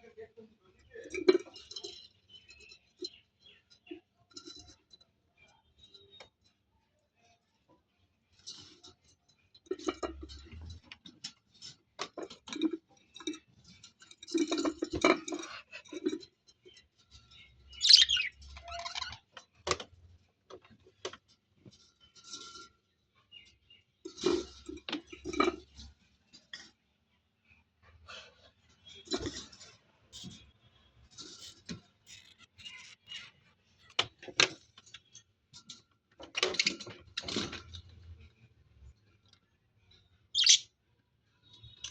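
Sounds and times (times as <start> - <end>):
small birds chirping: 0.7 - 8.4, 16.5 - 19.3, 39.8 - 40.7
light clicks and metallic clinks: 0.8 - 6.6, 7.2 - 26.8.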